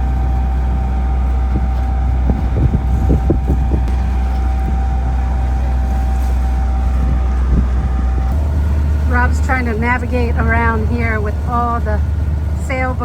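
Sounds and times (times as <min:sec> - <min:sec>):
sailboat rumbling in choppy water: 0:00.0 - 0:13.0
wind buffeting microphone: 0:00.0 - 0:13.0
heavy gusts or thumps: 0:01.4 - 0:11.2.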